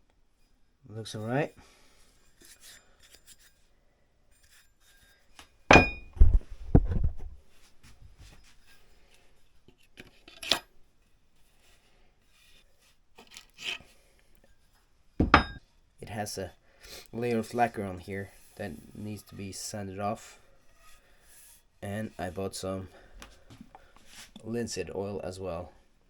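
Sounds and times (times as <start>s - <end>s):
wood and tools clattering: 5.7s - 6.4s, 15.2s - 15.6s.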